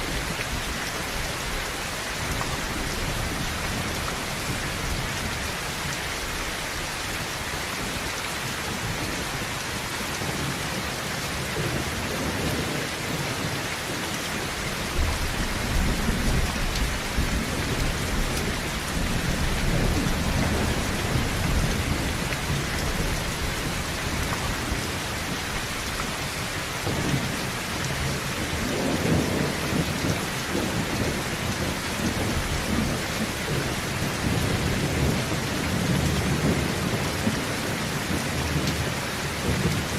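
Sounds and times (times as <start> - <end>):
heavy rain on a tin roof: 0.0 - 39.9
low rolling thunder: 14.9 - 25.0.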